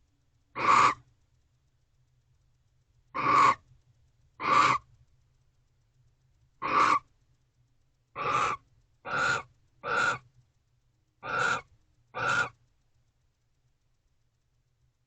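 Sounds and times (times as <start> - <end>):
barn owl screeching: 0.6 - 1.1, 3.2 - 3.7, 4.4 - 4.9, 6.6 - 7.1, 8.2 - 10.3, 11.2 - 12.6.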